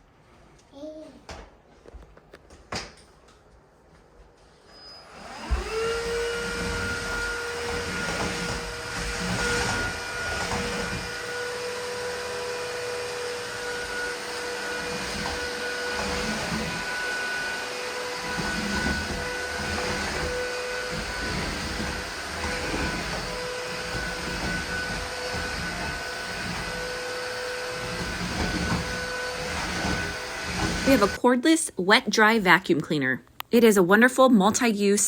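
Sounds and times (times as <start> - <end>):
vacuum mop motor whine: 4.4 - 31.2.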